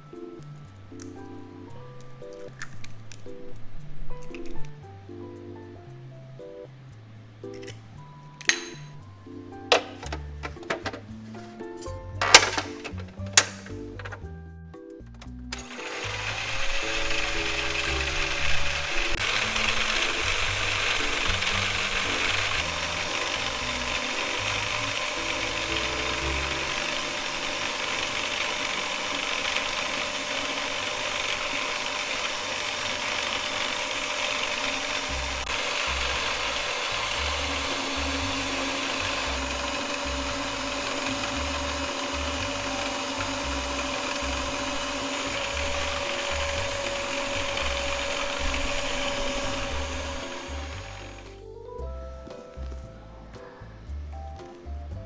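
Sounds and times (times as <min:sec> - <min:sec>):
light background music: 0:00.0 - 0:55.0
electric hand mixer running: 0:09.7 - 0:11.2, 0:12.2 - 0:14.2, 0:15.5 - 0:51.4.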